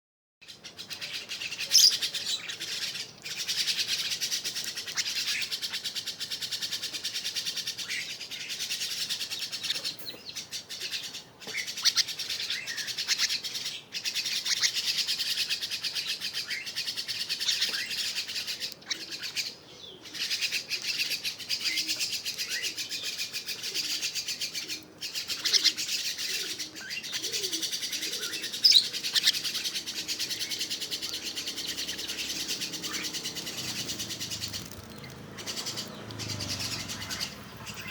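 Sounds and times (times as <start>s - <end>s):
starling chattering and twittering: 0.5s - 37.9s.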